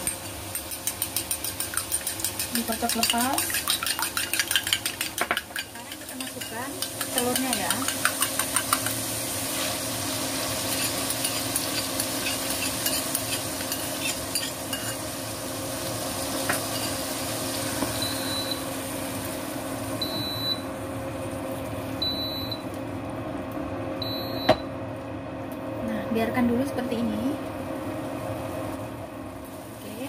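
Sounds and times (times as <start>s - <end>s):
egg sizzling in hot oil: 0.0s - 22.9s.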